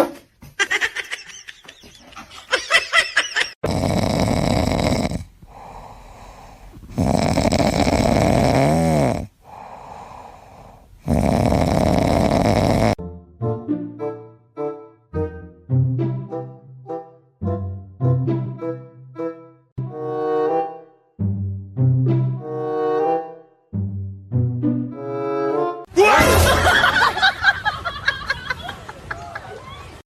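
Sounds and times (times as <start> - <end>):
pet snoring loudly: 3.6 - 13.0
quiet out-breaths: 5.2 - 7.0, 9.3 - 11.0.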